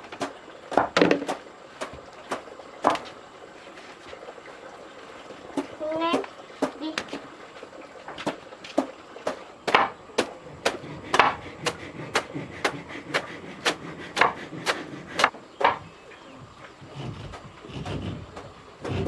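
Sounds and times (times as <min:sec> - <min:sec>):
sharp knocks on wood: 0:08.2 - 0:15.8.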